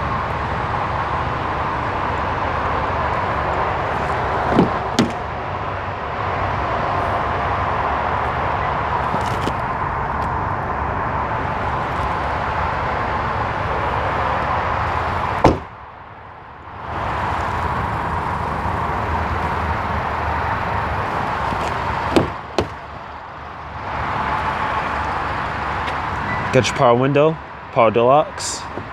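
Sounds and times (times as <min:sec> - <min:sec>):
car door shutting with a thud: 0:04.0 - 0:05.3, 0:15.4 - 0:15.7, 0:21.4 - 0:22.9.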